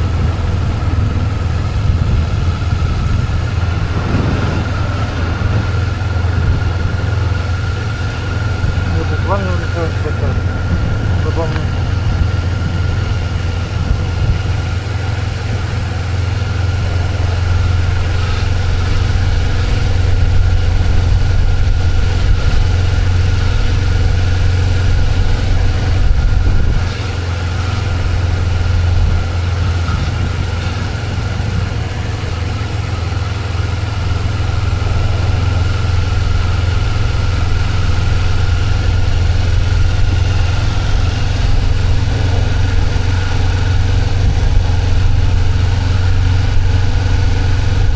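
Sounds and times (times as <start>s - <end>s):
motorcycle engine drone: 0.0s - 47.9s
rushing wind noise: 0.0s - 47.9s.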